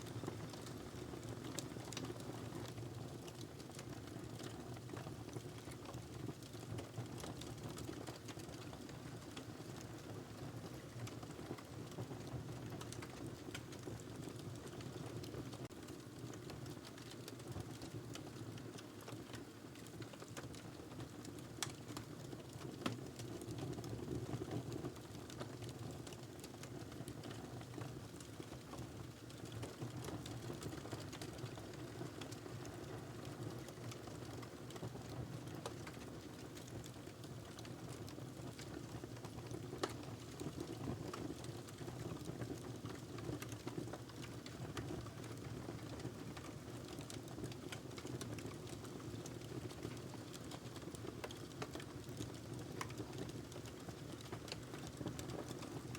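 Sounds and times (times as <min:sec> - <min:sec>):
fire crackling in fireplace: 0:00.1 - 0:55.9.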